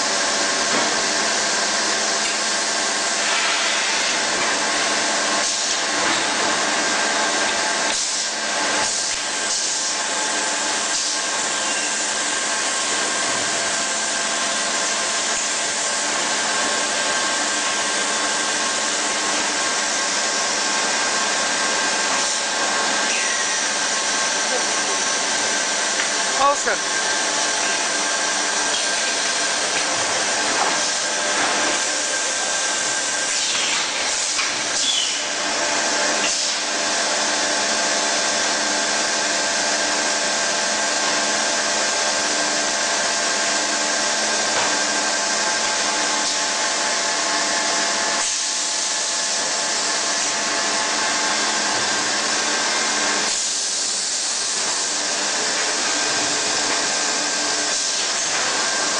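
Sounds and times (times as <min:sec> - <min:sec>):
machine hissing: 0:19.8 - 0:35.4.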